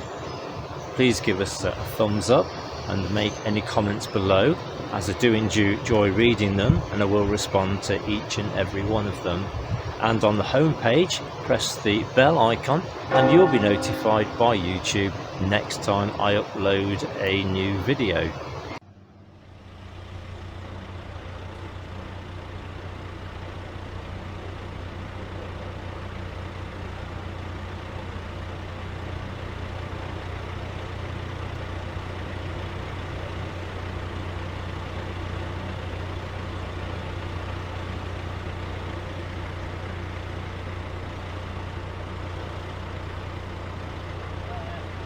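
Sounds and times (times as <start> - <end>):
low engine drone: 0.0 - 45.0.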